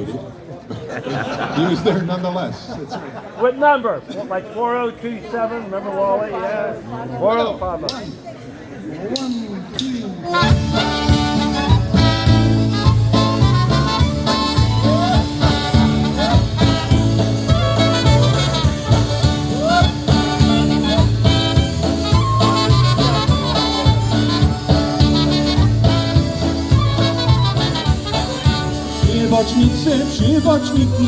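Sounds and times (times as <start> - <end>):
polka band playing: 9.7 - 31.0.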